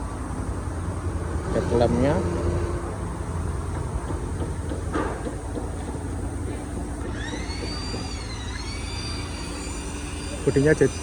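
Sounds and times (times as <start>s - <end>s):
high wavering whine: 7.0s - 11.0s.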